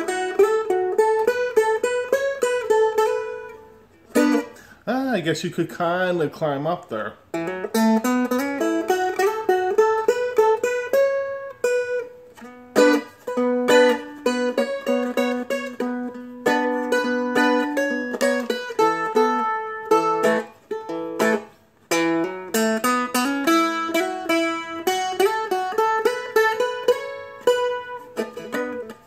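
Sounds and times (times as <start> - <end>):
flatpicked dulcimer melody: 7.3 - 29.0.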